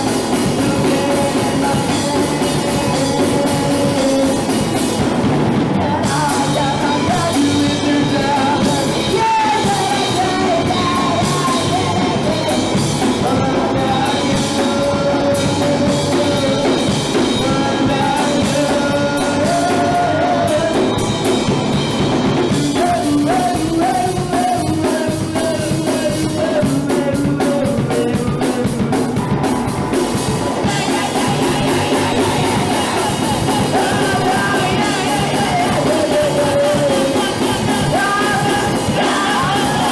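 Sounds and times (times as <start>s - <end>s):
punk rock band playing: 0.0s - 39.9s
shouted sung vocal: 0.0s - 39.9s.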